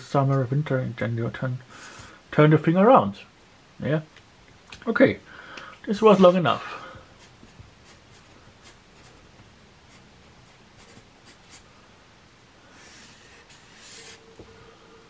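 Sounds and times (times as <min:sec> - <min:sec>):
pen scratching on paper: 0:07.2 - 0:09.2, 0:09.9 - 0:11.6, 0:12.8 - 0:14.3.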